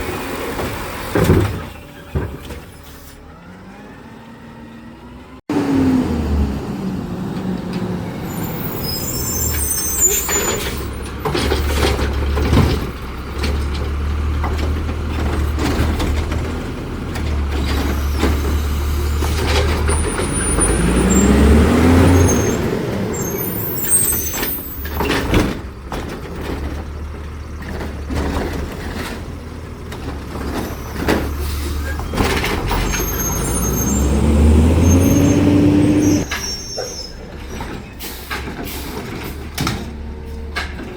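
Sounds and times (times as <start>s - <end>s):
knocks and clanks: 0.5s - 2.8s, 10.0s - 20.9s, 24.2s - 40.9s
garbage truck diesel engine revving: 3.2s - 40.9s.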